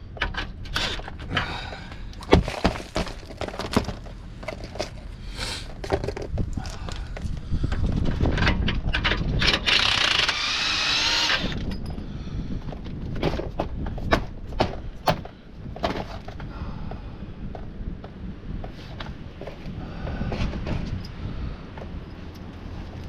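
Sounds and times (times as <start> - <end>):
power tool whining: 9.4 - 11.8.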